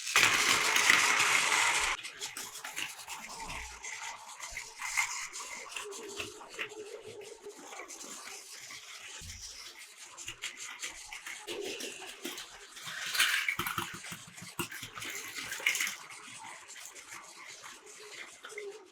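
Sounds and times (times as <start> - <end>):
wheels clacking over track joints: 0.0 - 3.0
toy train motors whirring: 0.0 - 18.9.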